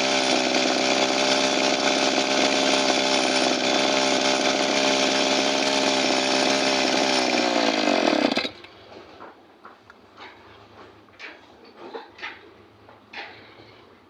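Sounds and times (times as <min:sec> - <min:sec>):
small two-stroke engine running: 0:00.0 - 0:08.8.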